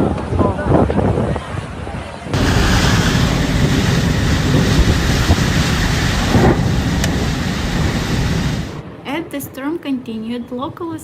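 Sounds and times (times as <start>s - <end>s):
wind blasting microphone: 0.0s - 9.0s
deep rumble: 2.3s - 8.9s
driving rain: 2.4s - 8.8s.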